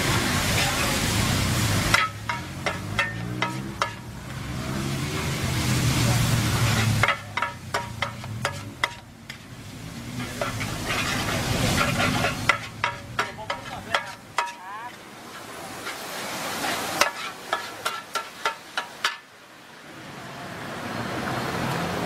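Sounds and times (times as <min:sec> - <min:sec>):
noodles sizzling on metal pan: 0:00.0 - 0:19.3
metal spatulas clanking on pan: 0:01.8 - 0:04.4, 0:06.6 - 0:09.4, 0:10.2 - 0:16.0, 0:16.6 - 0:19.3.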